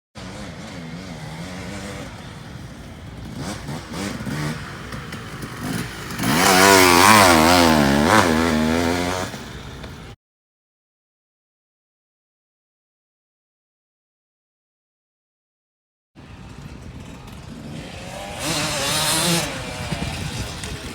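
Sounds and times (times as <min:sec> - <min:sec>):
motorcycle engine running: 0:00.2 - 0:10.2, 0:16.2 - 0:20.9.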